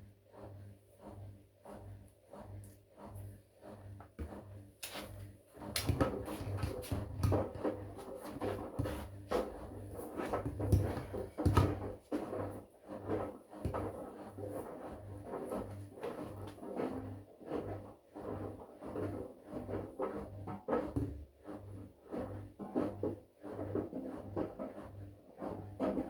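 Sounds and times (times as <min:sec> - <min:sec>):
washing machine motor hum: 0:03.8 - 0:16.8.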